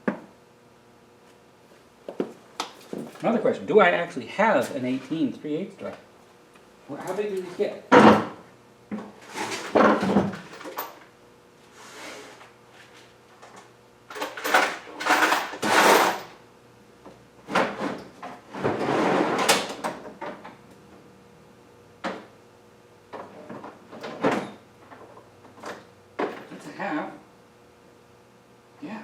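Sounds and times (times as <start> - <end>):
metal tools clattering and sliding: 14.1 - 16.3.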